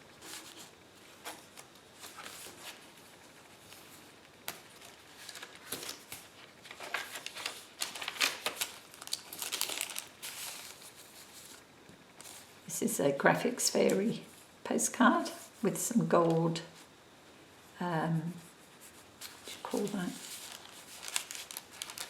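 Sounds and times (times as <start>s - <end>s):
paper rustling and crinkling: 0.0s - 12.5s, 18.4s - 22.0s.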